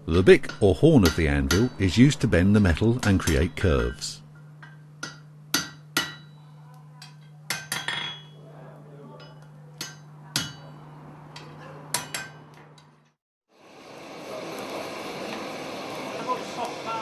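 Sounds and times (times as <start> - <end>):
hammer striking metal on anvil: 0.4 - 2.0, 2.8 - 8.4, 9.2 - 13.0.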